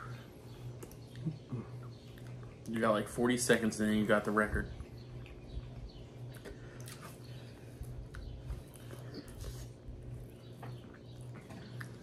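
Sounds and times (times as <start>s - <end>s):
steady low hum: 0.0s - 12.0s
person chewing food: 4.8s - 12.0s.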